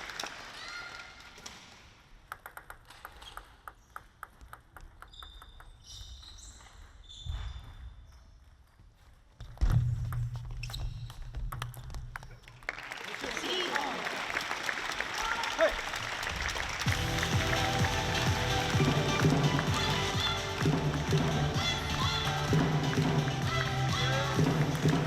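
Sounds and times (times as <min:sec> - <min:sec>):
table tennis ball clicking: 0:02.3 - 0:06.0.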